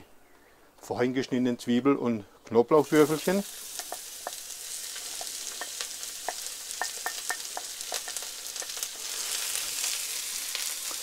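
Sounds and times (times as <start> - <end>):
onion and garlic sizzling in oil: 2.8 - 11.0.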